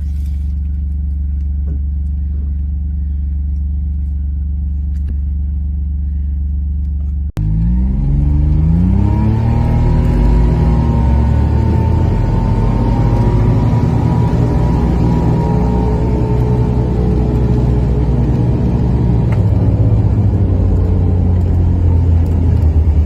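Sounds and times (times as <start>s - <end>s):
car engine accelerating: 6.9s - 23.0s.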